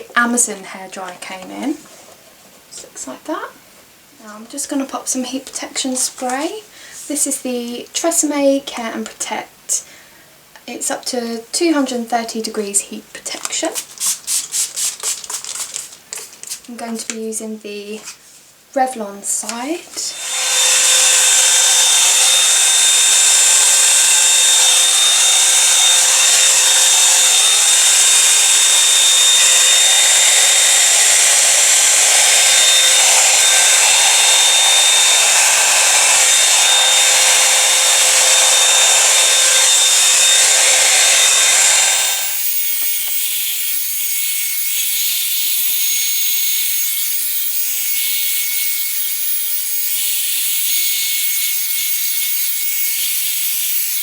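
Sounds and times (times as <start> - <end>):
hair dryer blowing with whine: 19.9 - 54.0.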